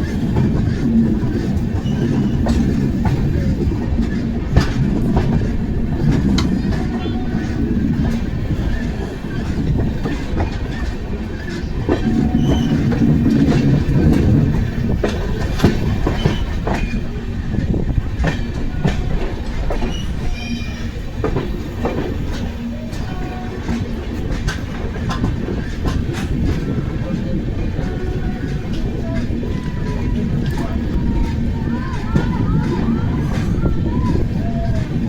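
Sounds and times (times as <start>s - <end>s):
train rumbling on rails: 0.0s - 35.0s
wheels clacking over rail joints: 0.0s - 35.0s
high wheel squeals: 0.1s - 3.1s, 6.6s - 14.4s, 19.8s - 21.2s.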